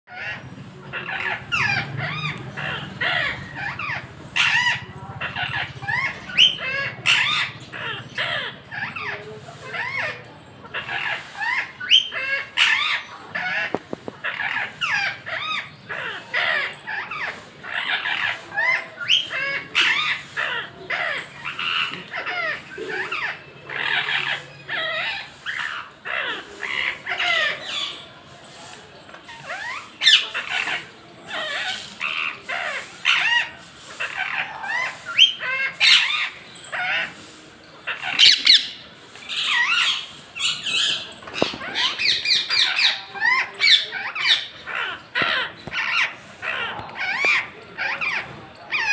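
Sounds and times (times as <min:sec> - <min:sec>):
parrots squawking and chirping: 0:00.1 - 0:48.9.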